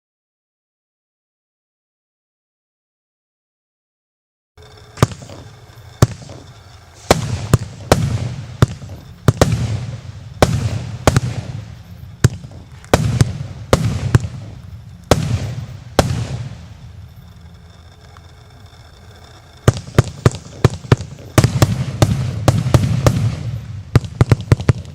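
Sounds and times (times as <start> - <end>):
firework bangs with hiss: 4.6 - 17.3, 19.7 - 24.9.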